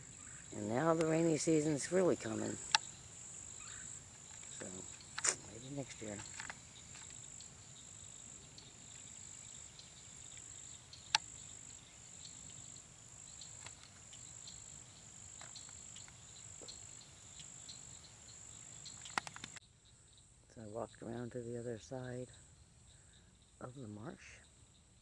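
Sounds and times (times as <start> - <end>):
insect chorus trilling: 0.0 - 25.0
sharp clicks: 2.6 - 2.9, 10.3 - 11.3, 18.9 - 19.6.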